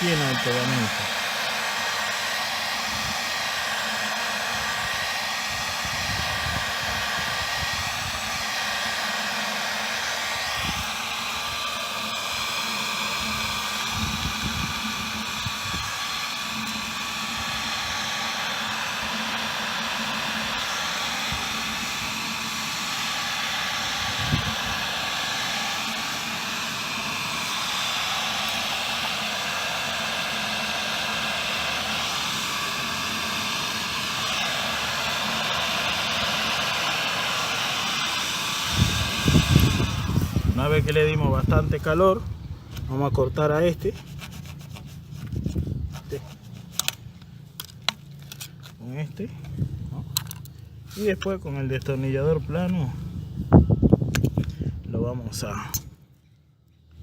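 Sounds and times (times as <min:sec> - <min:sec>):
heat gun blowing: 0:00.0 - 0:54.9.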